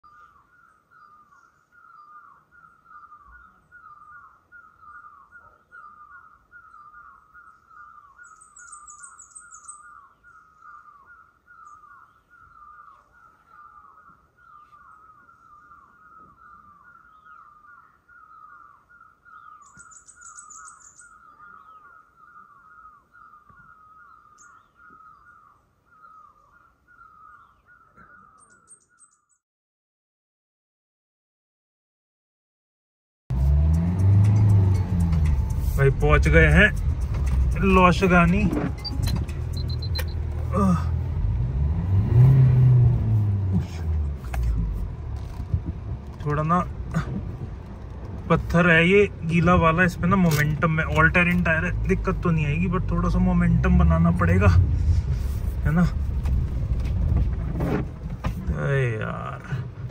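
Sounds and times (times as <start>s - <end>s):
bird calling: 0.0s - 29.4s, 35.5s - 41.0s
high bird trills: 0.0s - 29.4s, 35.4s - 40.8s.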